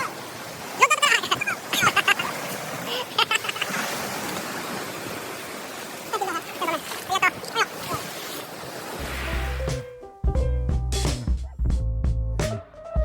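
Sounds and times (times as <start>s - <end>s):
music: 9.0s - 13.0s.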